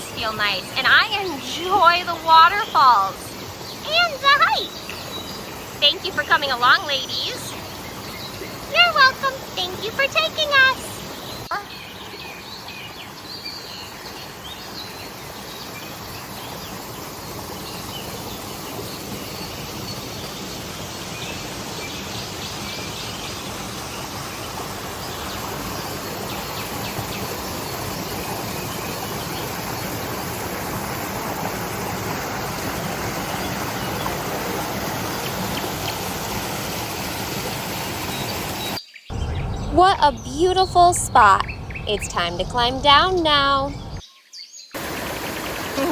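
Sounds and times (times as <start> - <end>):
creek and waterfall rushing: 0.0 - 38.8, 44.8 - 45.9
bird chirps: 38.1 - 45.9.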